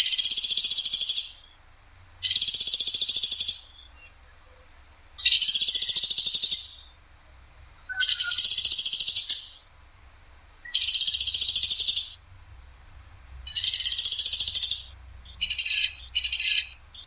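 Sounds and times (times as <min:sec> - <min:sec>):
bird calling harsh trills: 0:00.0 - 0:01.6, 0:02.2 - 0:07.0, 0:07.8 - 0:09.7, 0:10.6 - 0:12.3, 0:13.5 - 0:17.0.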